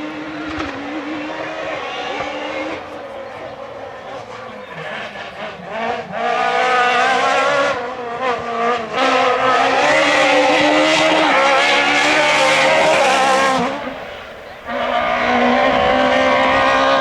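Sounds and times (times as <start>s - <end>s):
rally car engine revving: 5.7s - 17.0s.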